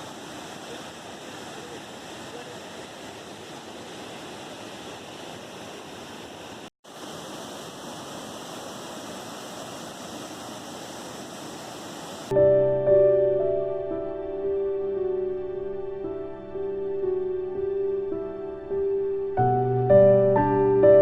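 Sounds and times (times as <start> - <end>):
soft piano music: 12.3 - 21.0.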